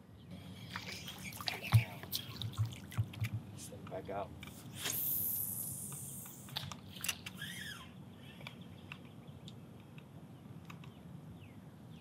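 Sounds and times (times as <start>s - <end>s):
high hiss: 4.7s - 6.6s
sharp clicks: 8.4s - 11.0s.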